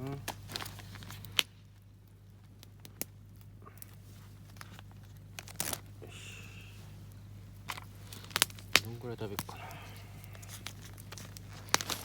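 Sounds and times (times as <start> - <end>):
plastic rustle: 0.0 - 1.8, 3.8 - 12.0
plastic packet crinkling: 4.4 - 5.9, 7.6 - 12.0.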